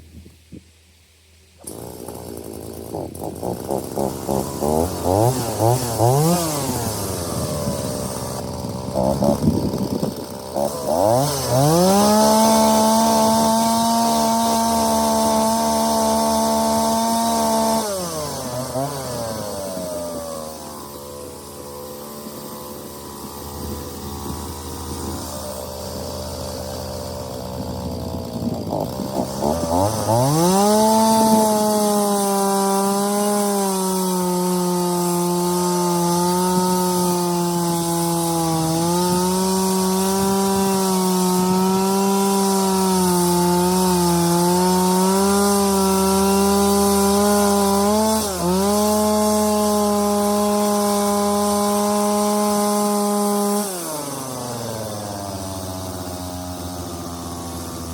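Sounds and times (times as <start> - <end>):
chainsaw cutting wood: 1.6 - 57.9.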